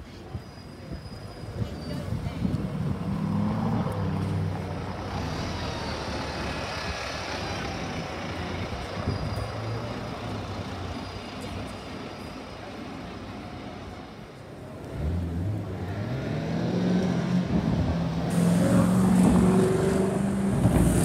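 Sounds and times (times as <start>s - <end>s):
street traffic noise: 0.0s - 21.0s
car engine pulling away: 14.8s - 21.0s.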